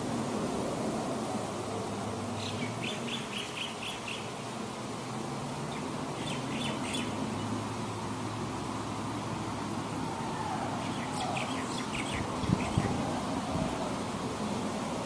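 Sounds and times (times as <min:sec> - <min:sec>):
background hiss and hum: 0:00.0 - 0:15.0
small bird chirping: 0:02.4 - 0:04.3, 0:05.7 - 0:07.2, 0:10.8 - 0:13.0.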